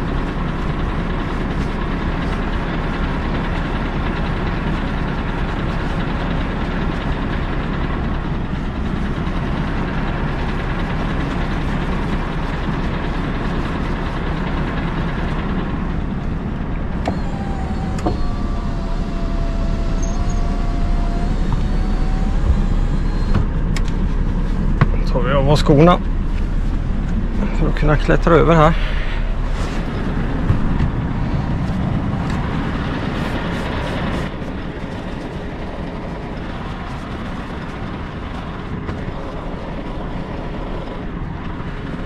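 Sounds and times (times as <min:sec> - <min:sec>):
diesel engine idling: 0:00.0 - 0:42.0
faint wavering whine: 0:17.0 - 0:24.7.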